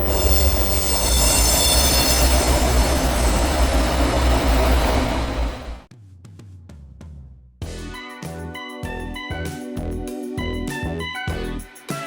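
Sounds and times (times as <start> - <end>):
high-pitched whine: 0.0 - 5.8
metro train rumble: 0.0 - 5.9.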